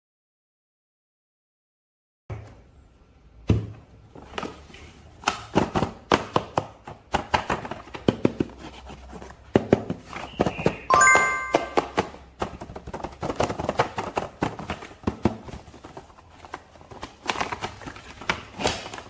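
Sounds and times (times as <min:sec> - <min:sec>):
hands handling plastic packaging: 0:12.0 - 0:19.0.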